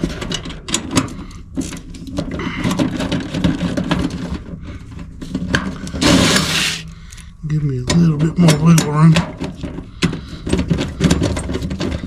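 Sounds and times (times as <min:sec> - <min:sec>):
metal parts clicking and rattling: 0:00.0 - 0:12.0.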